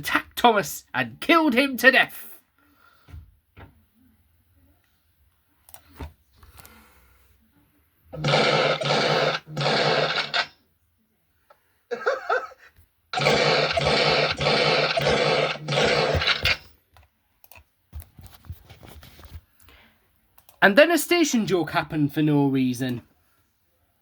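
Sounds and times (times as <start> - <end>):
harsh noisy sound effect: 8.2 - 10.5, 13.2 - 16.7.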